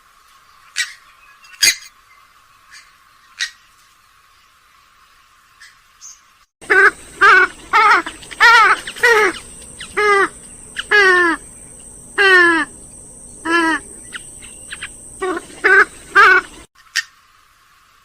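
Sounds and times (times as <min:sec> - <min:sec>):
bird calling loud short calls: 0:06.6 - 0:16.7.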